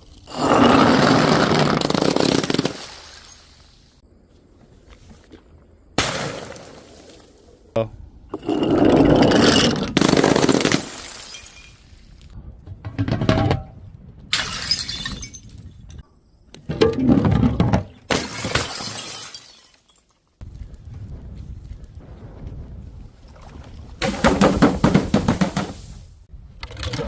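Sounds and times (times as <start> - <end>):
glass bottles shattering: 9.5 - 11.9, 14.3 - 15.8, 18.1 - 20.2.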